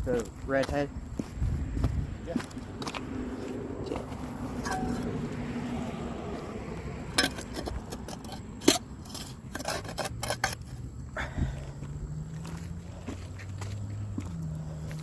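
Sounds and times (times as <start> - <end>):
metal shovel scraping: 4.5 - 5.4, 7.1 - 10.8
shovel clanks: 4.6 - 5.2, 7.1 - 10.7.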